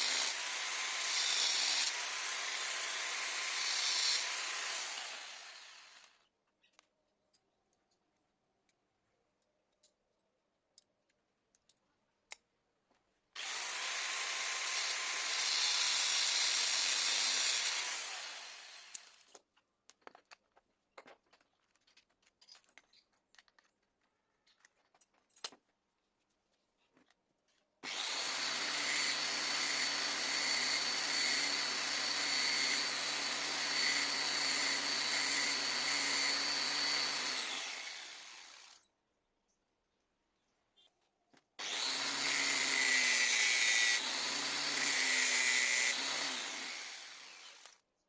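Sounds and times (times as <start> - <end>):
parts clicking and knocking: 6.0 - 13.1, 18.9 - 26.0
die grinder whining: 13.4 - 19.2, 27.8 - 38.8, 41.6 - 47.8.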